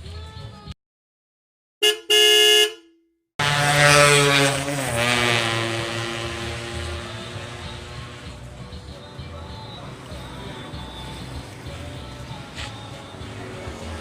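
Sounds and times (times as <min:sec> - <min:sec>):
horn honking: 0:01.8 - 0:08.4.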